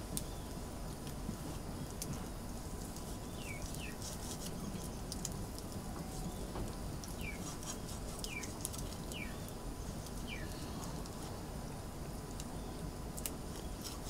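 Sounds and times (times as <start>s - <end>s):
low background hiss: 0.0s - 14.0s
bird calling: 7.2s - 9.5s, 10.2s - 10.8s.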